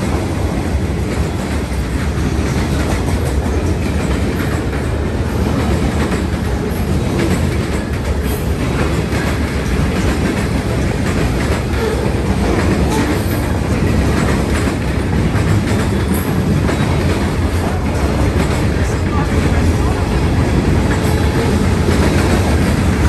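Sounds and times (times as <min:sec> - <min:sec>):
train wheels rumbling on rail: 0:00.0 - 0:23.0
wheels clacking over rail joints: 0:00.0 - 0:23.0.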